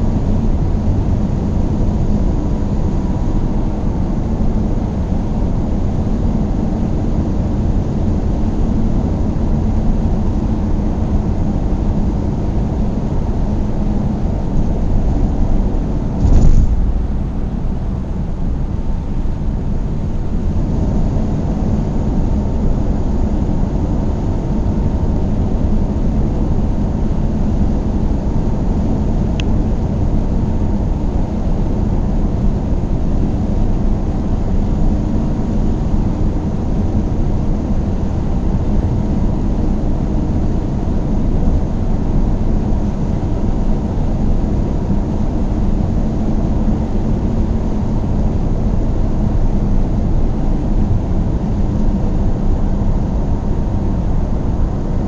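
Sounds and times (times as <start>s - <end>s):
car engine and tyre rumble: 0.0s - 40.3s.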